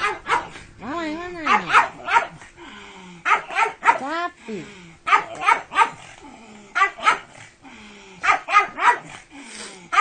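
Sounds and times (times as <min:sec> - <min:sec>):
dog barking sharply: 0:00.0 - 0:00.6, 0:01.5 - 0:02.4, 0:03.3 - 0:04.1, 0:05.1 - 0:06.0.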